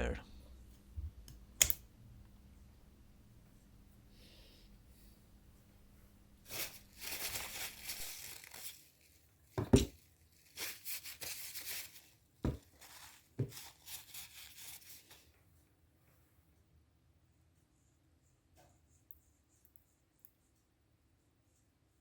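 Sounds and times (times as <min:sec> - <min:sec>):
rustling and crinkling handling: 0:06.4 - 0:15.7.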